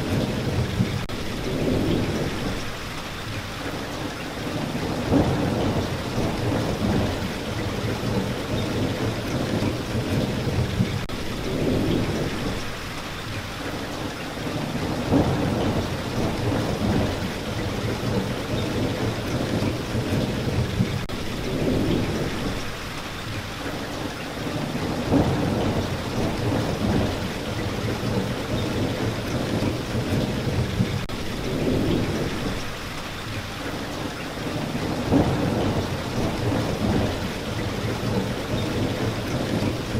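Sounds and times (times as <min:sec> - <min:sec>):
rain hissing: 0:00.0 - 0:39.9
thunder rolling: 0:04.5 - 0:12.7, 0:14.5 - 0:22.7, 0:24.5 - 0:32.7, 0:34.5 - 0:39.9.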